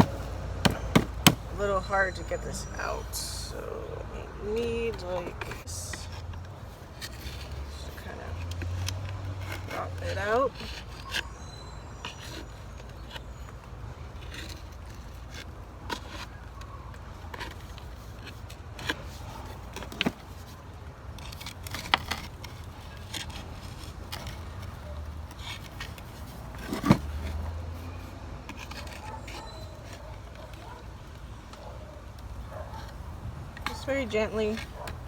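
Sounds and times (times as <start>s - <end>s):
plant pot knocks and scrapes: 0.0s - 1.7s.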